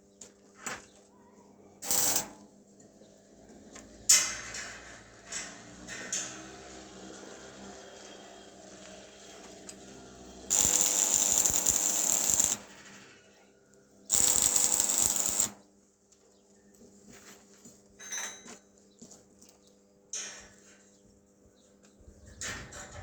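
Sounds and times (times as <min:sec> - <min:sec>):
power tool working metal: 0:01.8 - 0:02.3, 0:10.4 - 0:12.8, 0:14.1 - 0:15.6.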